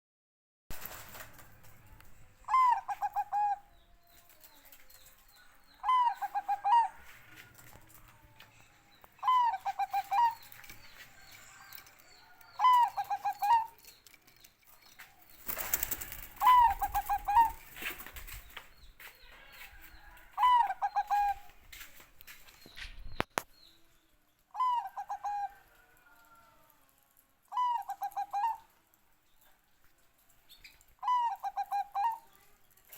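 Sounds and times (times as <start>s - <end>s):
dove cooing song: 2.4s - 8.2s, 9.1s - 14.0s, 15.4s - 18.6s, 19.4s - 21.6s, 24.6s - 25.9s, 27.5s - 28.7s, 31.0s - 32.4s.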